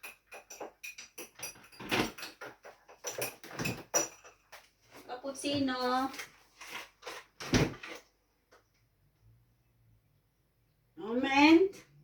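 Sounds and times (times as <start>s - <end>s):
kitchen items clicking and knocking: 0.0s - 4.8s.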